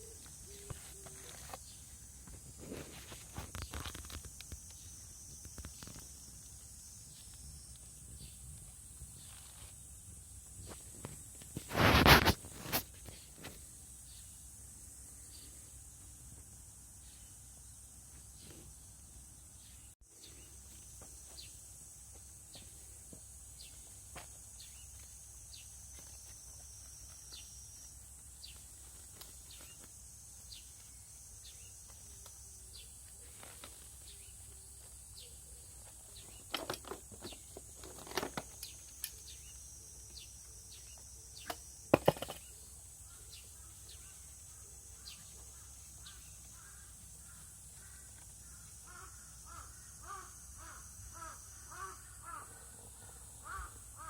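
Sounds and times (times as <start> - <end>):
birds chirping: 0.0 - 2.4, 30.5 - 54.0
crow cawing: 45.6 - 52.7, 53.4 - 54.0.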